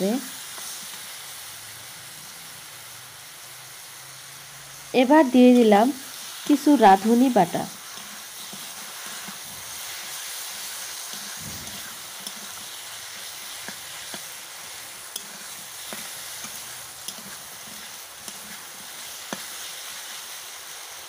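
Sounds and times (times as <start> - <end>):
food sizzling in oil: 0.0 - 21.0
spatula scraping metal pan: 6.2 - 19.6.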